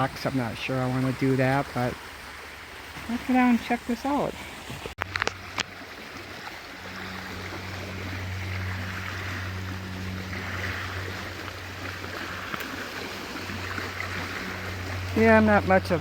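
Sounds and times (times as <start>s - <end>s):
water moving along shore: 0.0s - 16.0s
low engine drone: 5.0s - 16.0s.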